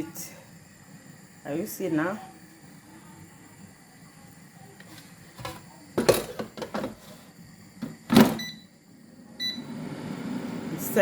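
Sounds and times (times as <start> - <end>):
air fryer knocks and clatter: 5.4 - 7.0, 7.8 - 8.5.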